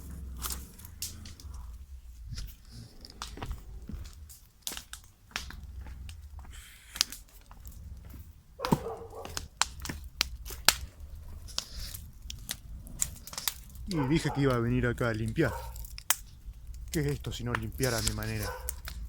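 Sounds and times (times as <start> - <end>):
objects clicking and knocking: 0.0 - 19.0
paper and plastic crinkling: 8.6 - 19.0.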